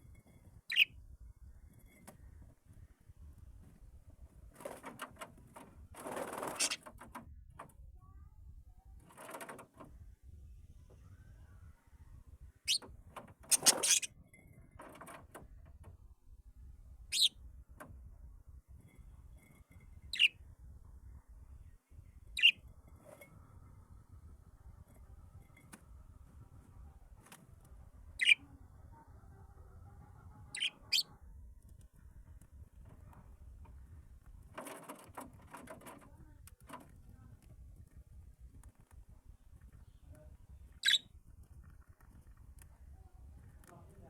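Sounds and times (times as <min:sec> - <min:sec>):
pet birds chirping: 0:00.7 - 0:00.9, 0:06.5 - 0:06.8, 0:12.6 - 0:12.8, 0:13.5 - 0:14.1, 0:17.1 - 0:17.4, 0:20.1 - 0:20.4, 0:22.2 - 0:22.6, 0:28.2 - 0:28.5, 0:30.5 - 0:31.2, 0:40.8 - 0:41.1.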